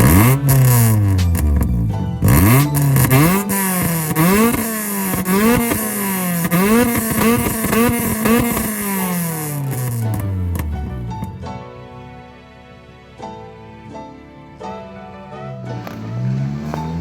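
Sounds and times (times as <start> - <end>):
car engine revving in blips: 0.0 - 11.3, 15.7 - 17.0.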